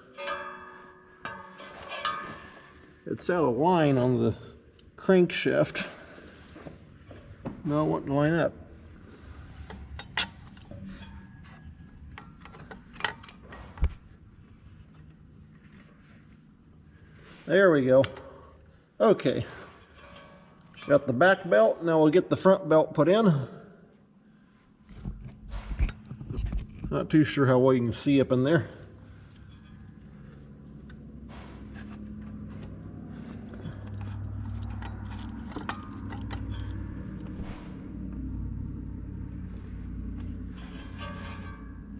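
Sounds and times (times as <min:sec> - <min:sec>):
hands working a fan belt: 0:00.0 - 0:03.4, 0:28.9 - 0:41.9
low rumbling hum: 0:05.8 - 0:17.5, 0:24.2 - 0:41.9.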